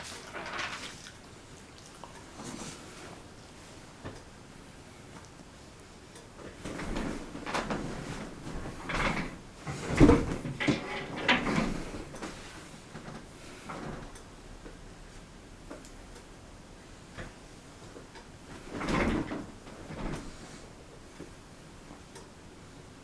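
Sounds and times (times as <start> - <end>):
objects rustling and knocking: 0.0 - 1.2, 6.4 - 14.1.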